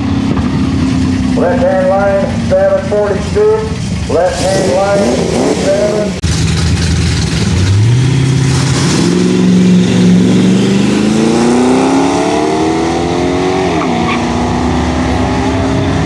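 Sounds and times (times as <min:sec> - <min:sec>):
race cars accelerating hard: 0:07.3 - 0:16.0.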